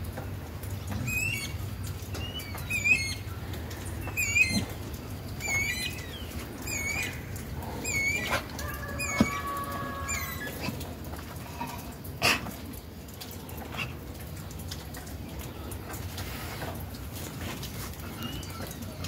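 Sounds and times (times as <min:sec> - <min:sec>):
bird warbling call: 0:01.1 - 0:03.3, 0:04.0 - 0:04.7, 0:05.4 - 0:10.6.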